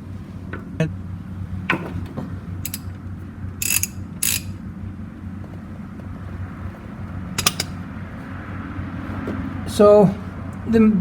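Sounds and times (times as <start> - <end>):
steady low hum: 0.0 - 11.0
ratchet wrench clicking: 2.6 - 2.9, 3.6 - 4.6, 7.4 - 7.8.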